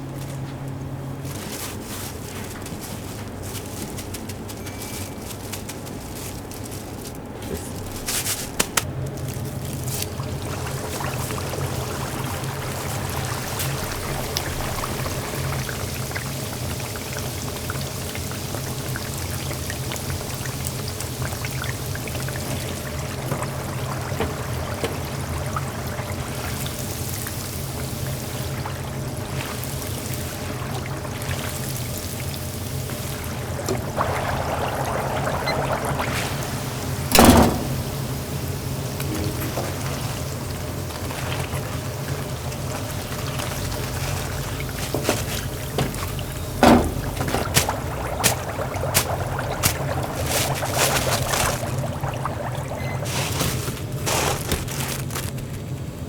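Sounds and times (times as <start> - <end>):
oil sizzling in deep fryer: 8.8 - 56.0
steady low hum: 27.6 - 56.0.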